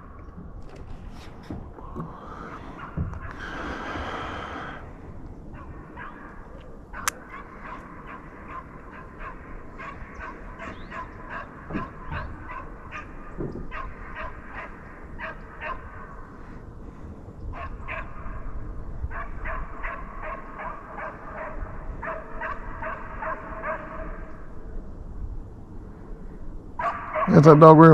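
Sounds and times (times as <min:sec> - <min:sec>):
hounds barking and yelping: 0:02.5 - 0:03.5, 0:05.5 - 0:16.2, 0:17.5 - 0:18.4, 0:19.1 - 0:24.4, 0:26.8 - 0:27.7.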